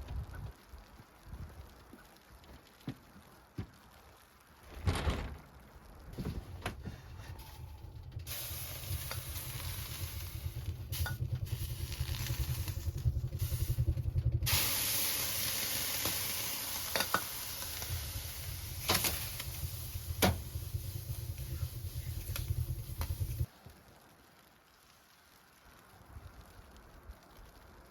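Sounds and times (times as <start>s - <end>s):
low rumble: 4.8s - 23.5s
sizzling hiss: 7.3s - 27.9s.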